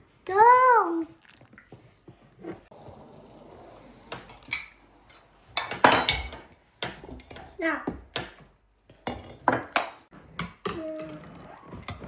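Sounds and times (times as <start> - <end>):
dishes and cutlery clinking: 4.1 - 12.0.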